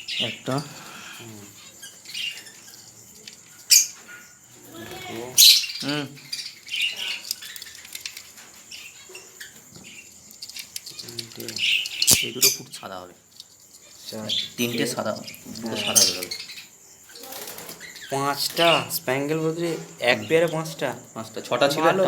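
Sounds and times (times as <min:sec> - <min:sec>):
budgerigars chirping: 0:00.0 - 0:07.9, 0:08.6 - 0:13.1, 0:13.8 - 0:21.0
cage clicks and rattles: 0:06.9 - 0:08.8, 0:09.5 - 0:12.4.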